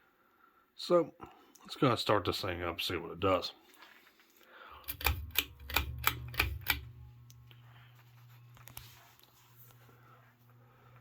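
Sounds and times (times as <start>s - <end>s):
sharp clicks: 4.8s - 7.4s
ceiling fan motor humming: 4.8s - 11.0s.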